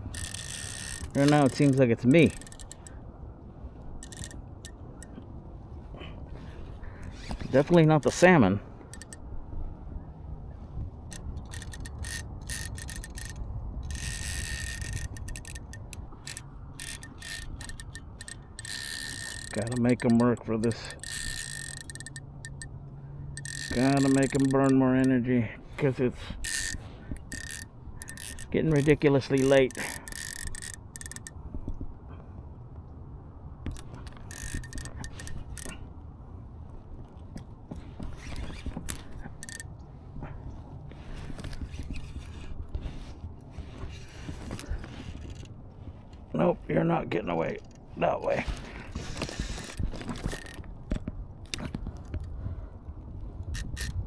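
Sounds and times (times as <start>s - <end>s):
fishing reel drag clicking: 0.0s - 3.0s, 3.9s - 5.1s, 7.0s - 9.2s, 11.1s - 25.2s, 25.9s - 31.4s, 33.6s - 35.8s, 38.0s - 39.8s, 43.8s - 45.5s, 48.9s - 50.7s, 53.4s - 54.0s.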